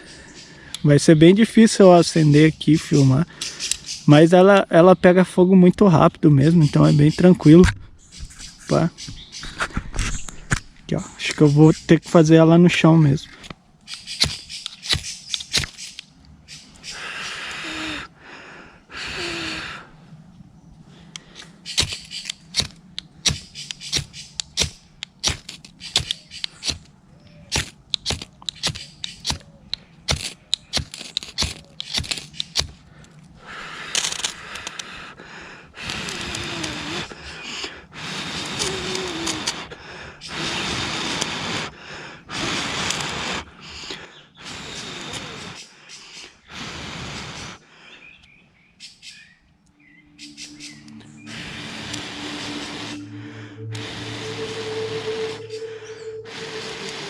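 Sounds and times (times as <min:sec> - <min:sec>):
sharp clicks and ticks: 0:02.7 - 0:04.0, 0:27.5 - 0:33.3
knife scraping ferrocerium rod: 0:30.1 - 0:32.8.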